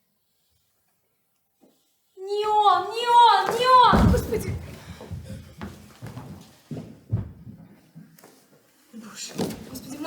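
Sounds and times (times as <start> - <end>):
dull thumps on stage floor: 3.5 - 7.7.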